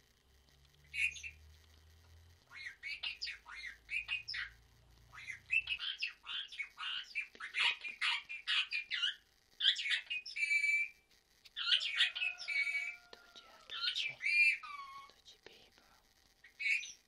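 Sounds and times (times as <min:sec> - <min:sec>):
parrot chirps and squeaks: 0:00.9 - 0:01.4, 0:02.5 - 0:11.0, 0:11.6 - 0:15.2, 0:16.4 - 0:17.0.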